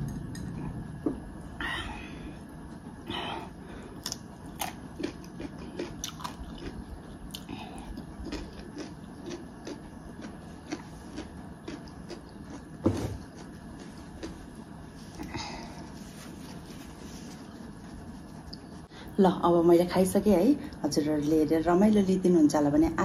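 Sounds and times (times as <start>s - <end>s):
person chewing: 3.8s - 15.9s
small clicks and mouth sounds: 4.0s - 12.6s.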